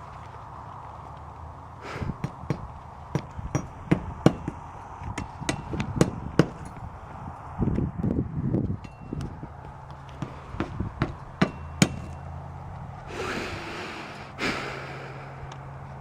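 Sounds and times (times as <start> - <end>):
steady background hum: 0.0 - 16.0
knocks and taps from roofing work: 2.2 - 6.7, 8.7 - 12.2.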